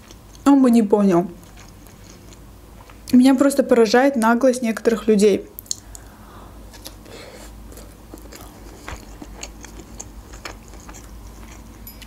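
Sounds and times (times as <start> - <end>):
person chewing broccoli: 1.4 - 3.1, 5.6 - 12.0.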